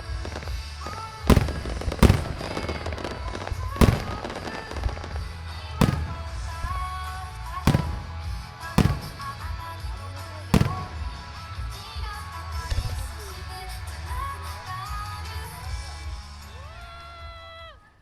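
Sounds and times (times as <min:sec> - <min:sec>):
fireworks booming: 0:00.3 - 0:13.1
music playing: 0:01.3 - 0:06.7.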